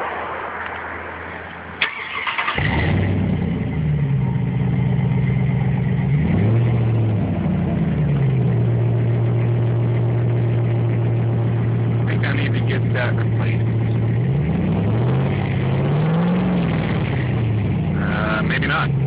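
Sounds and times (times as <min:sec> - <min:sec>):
engine cranking on starter: 0:01.8 - 0:03.1
loud engine idling: 0:01.8 - 0:19.0.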